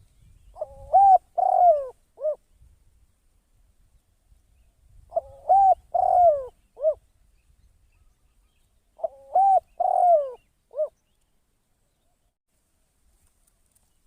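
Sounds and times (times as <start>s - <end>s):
dove cooing: 0.5s - 2.4s, 5.1s - 7.0s, 9.0s - 11.0s.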